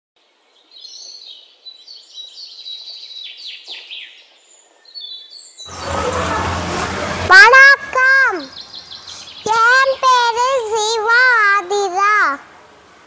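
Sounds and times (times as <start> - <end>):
birds chirping and whistling: 1.8 - 6.0, 8.5 - 10.0.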